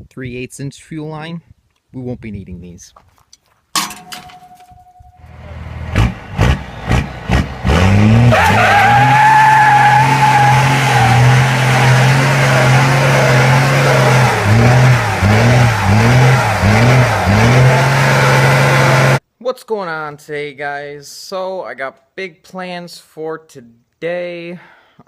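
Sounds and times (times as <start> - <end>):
tires squealing: 5.2 - 19.2
vehicle engine revving: 5.2 - 19.2.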